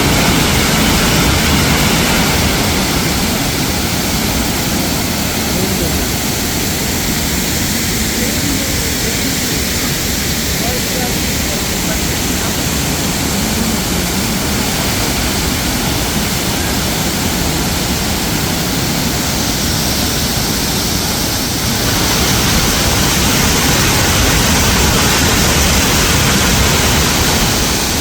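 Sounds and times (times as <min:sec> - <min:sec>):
waterfall crashing: 0:00.0 - 0:28.0.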